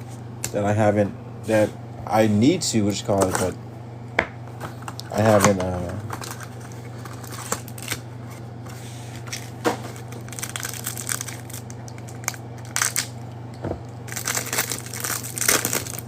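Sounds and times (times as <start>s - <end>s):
steady low hum: 0.0s - 16.0s
packaging crinkling and tearing: 5.2s - 8.1s, 9.2s - 13.2s, 14.1s - 16.0s.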